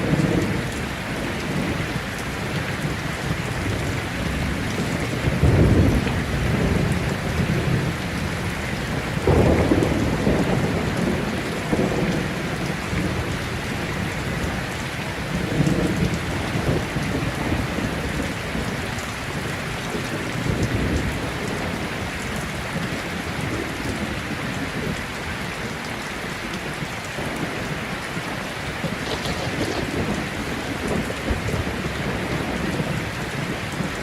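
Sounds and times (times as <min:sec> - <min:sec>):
thunder rumbling: 0:00.0 - 0:18.7, 0:28.2 - 0:34.0
heavy rain falling: 0:00.0 - 0:34.0.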